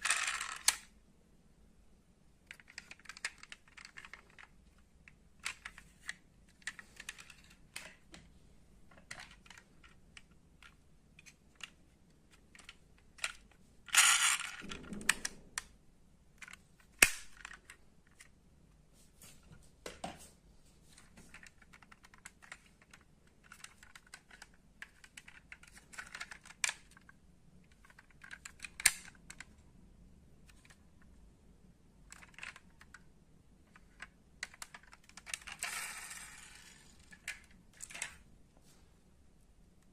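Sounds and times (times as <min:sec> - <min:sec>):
small metal and plastic parts clicking: 0:00.0 - 0:00.9, 0:02.5 - 0:08.0, 0:08.9 - 0:15.7, 0:21.3 - 0:29.6, 0:32.1 - 0:33.0, 0:33.7 - 0:38.2.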